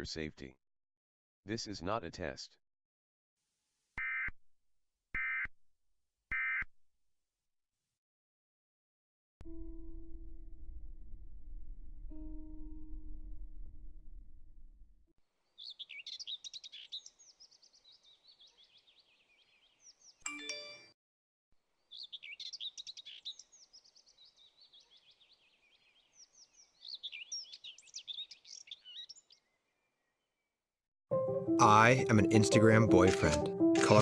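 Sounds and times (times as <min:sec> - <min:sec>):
songbird twittering: 0:15.5 - 0:20.2, 0:21.9 - 0:30.5.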